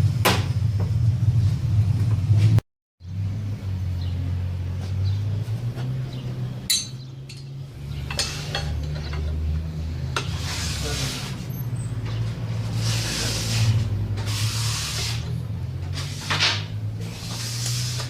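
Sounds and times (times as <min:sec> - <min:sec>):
metallic clinks of hand tools: 0:06.7 - 0:07.5.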